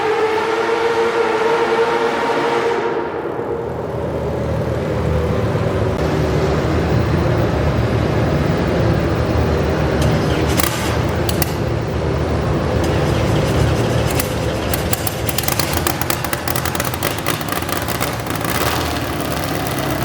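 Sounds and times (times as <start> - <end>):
tractor engine low rumble: 3.4 - 20.0
sharp clicks: 10.0 - 12.0, 12.8 - 20.0.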